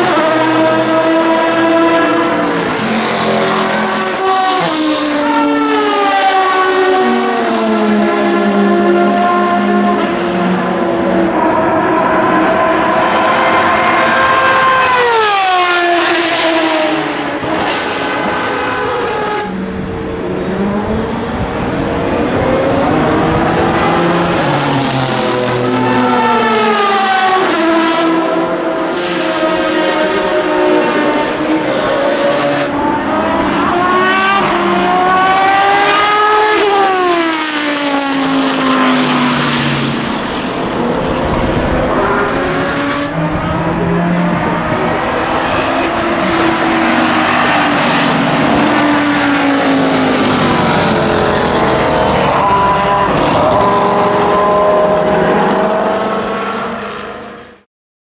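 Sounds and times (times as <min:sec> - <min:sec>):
racing engine howling past: 0:00.0 - 0:57.4.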